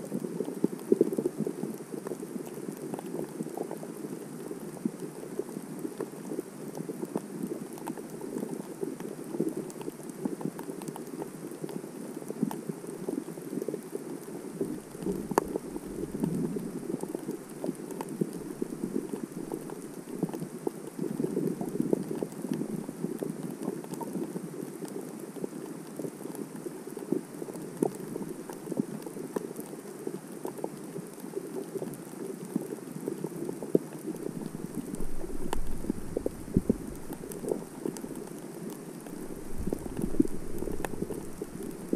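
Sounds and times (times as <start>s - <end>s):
crackling clicks underwater: 0.0s - 41.9s
muffled underwater wash: 0.2s - 24.0s, 34.0s - 41.9s.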